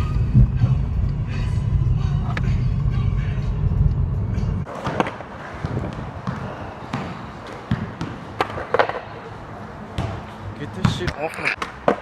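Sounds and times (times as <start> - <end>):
skateboard rolling on pavement: 4.6 - 10.5
skateboard clacking on ground: 4.7 - 6.6, 7.4 - 10.4, 11.0 - 12.0.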